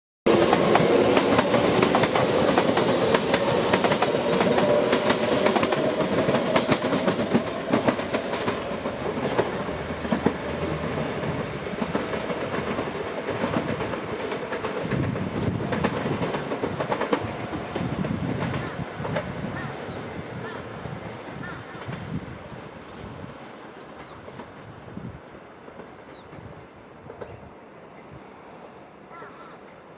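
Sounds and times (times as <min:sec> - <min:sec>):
train wheels clacking over rail joints: 0:00.3 - 0:20.6.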